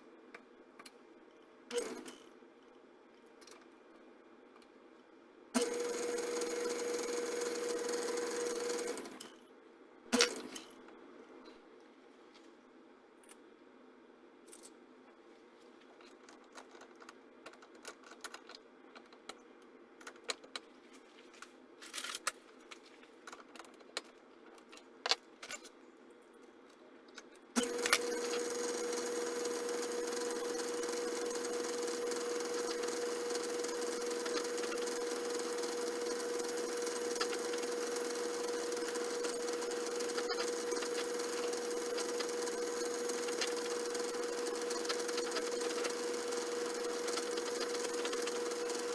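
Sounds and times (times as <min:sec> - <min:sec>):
machine tool motor running: 0:05.6 - 0:09.1, 0:27.6 - 0:48.9.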